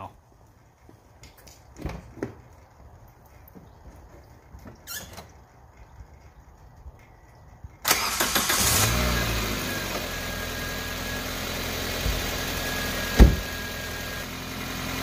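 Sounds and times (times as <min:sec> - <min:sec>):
car starter cranking: 0:07.8 - 0:09.4
car engine revving and idling: 0:08.3 - 0:15.0.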